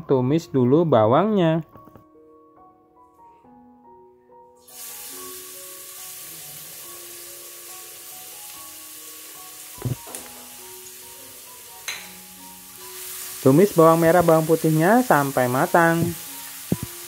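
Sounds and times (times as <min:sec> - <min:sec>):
shallots sizzling in oil: 0:04.6 - 0:17.0.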